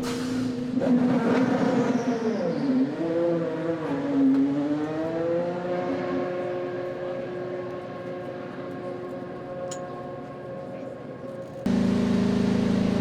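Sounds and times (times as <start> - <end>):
race car engines passing: 0.7 - 8.1.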